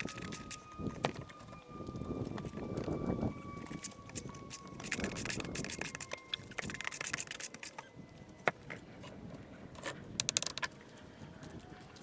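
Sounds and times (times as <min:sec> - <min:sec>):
scraping and clicking on stone: 0:03.6 - 0:07.8, 0:09.8 - 0:10.7.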